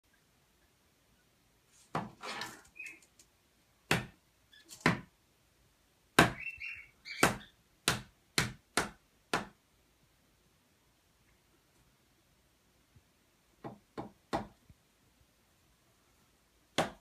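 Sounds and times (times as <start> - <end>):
parrot soft chirps: 2.4 - 3.1, 6.3 - 7.6
parrot making sharp knocks: 6.2 - 6.4, 7.2 - 9.6.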